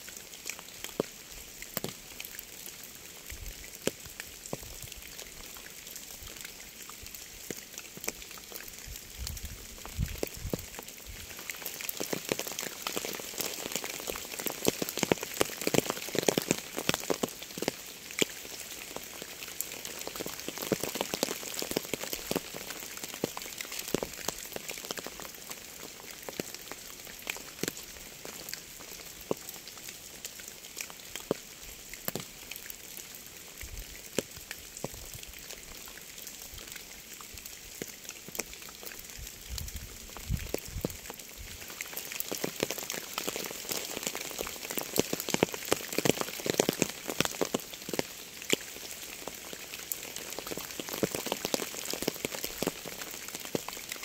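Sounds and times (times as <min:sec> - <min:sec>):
rain falling: 0:00.0 - 0:54.0
raindrops tapping: 0:09.7 - 0:29.6, 0:40.1 - 0:54.0.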